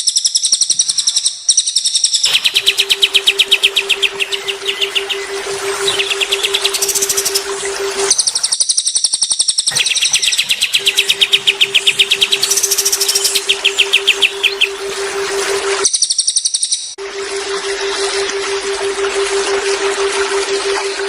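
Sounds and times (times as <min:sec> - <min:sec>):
songbirds trilling: 0:02.2 - 0:08.6, 0:09.7 - 0:16.4
low pulsing tone: 0:02.3 - 0:08.5, 0:09.7 - 0:15.9, 0:17.0 - 0:21.0.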